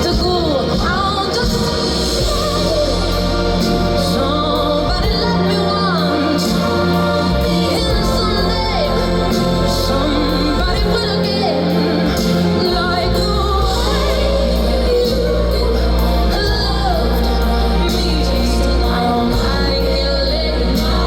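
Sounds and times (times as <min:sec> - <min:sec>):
live band playing: 0:00.0 - 0:21.0
woman singing: 0:00.0 - 0:21.0.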